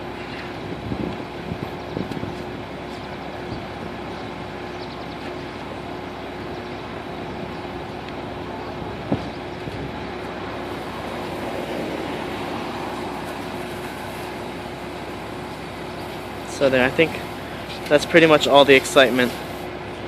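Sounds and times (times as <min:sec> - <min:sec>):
diesel engine humming: 0:00.0 - 0:20.0.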